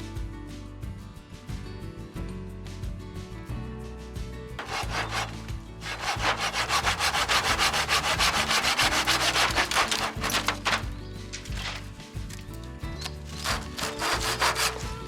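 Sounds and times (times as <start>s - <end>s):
saw cutting wood: 4.6s - 11.8s, 13.0s - 15.0s.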